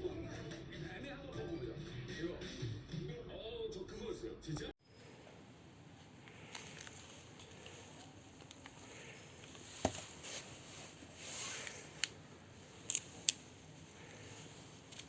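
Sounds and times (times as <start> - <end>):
faint rustling handling noise: 4.8 - 15.0
sharp clicks: 11.6 - 15.0.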